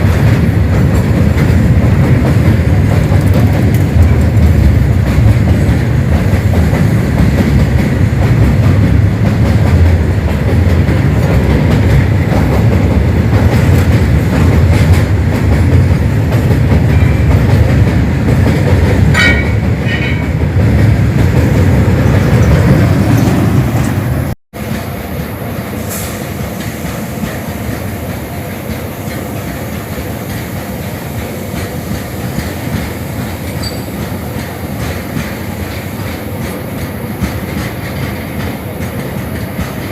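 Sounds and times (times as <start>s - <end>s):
quieter steady train noise: 0.0s - 39.9s
train wheels rumbling on rails: 0.0s - 39.9s
train wheel squeals: 30.4s - 39.9s.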